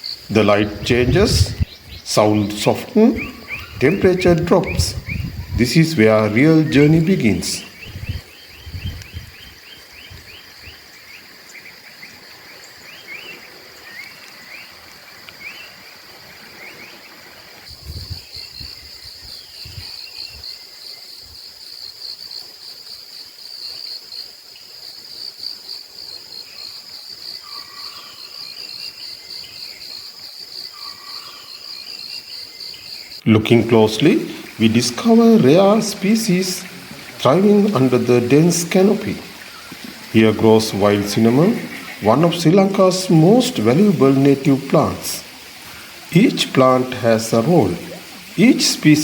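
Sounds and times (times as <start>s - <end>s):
birds chirping: 0.0s - 17.4s, 30.8s - 49.0s
insect trill: 0.0s - 49.0s.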